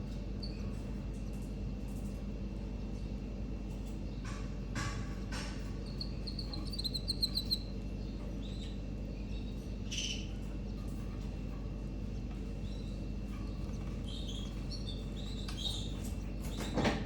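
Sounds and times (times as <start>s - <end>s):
steady low hum: 0.0s - 16.8s
canaries chirping: 5.8s - 7.7s, 12.7s - 16.6s.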